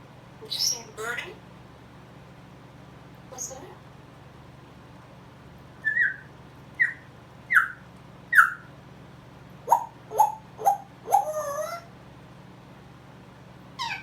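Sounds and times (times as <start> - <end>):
parrot sharp lower calls: 5.8 - 8.7, 13.8 - 14.0
parrot whistled chirps: 5.8 - 8.7.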